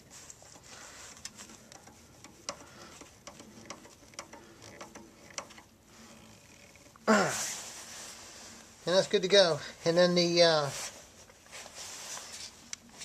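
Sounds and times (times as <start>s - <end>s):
clamp clicking: 1.2s - 5.7s.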